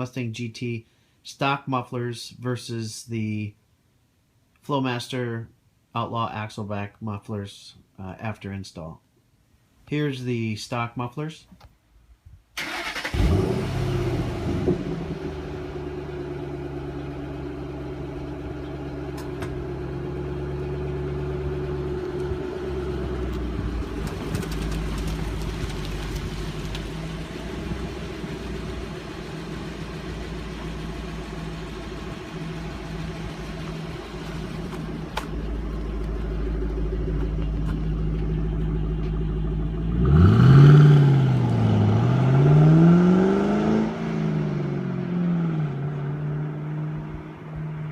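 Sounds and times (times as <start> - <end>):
car engine revving: 12.6 - 47.9
car engine starting: 12.6 - 47.9
car engine idling: 12.7 - 41.8.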